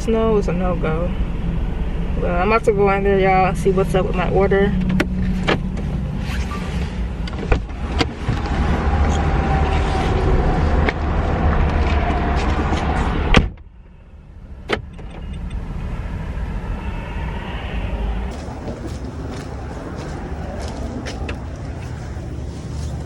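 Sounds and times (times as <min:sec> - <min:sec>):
car cabin rumble: 0:00.0 - 0:13.8, 0:18.0 - 0:23.0
car door shutting: 0:04.8 - 0:06.4, 0:13.2 - 0:13.7, 0:14.6 - 0:15.5.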